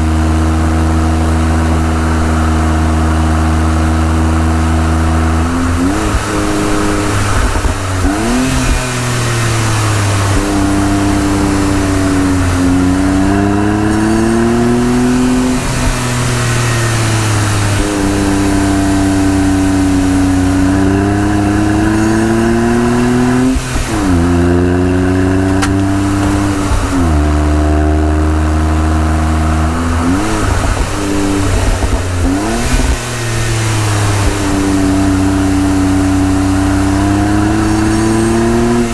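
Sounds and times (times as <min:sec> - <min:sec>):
car engine revving through gears: 0:00.0 - 0:38.9.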